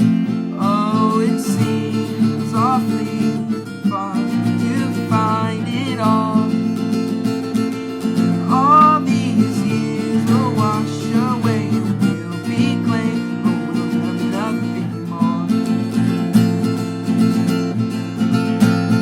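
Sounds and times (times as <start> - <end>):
acoustic guitar strumming: 0.0 - 19.0
person singing: 0.5 - 6.7, 8.3 - 15.9.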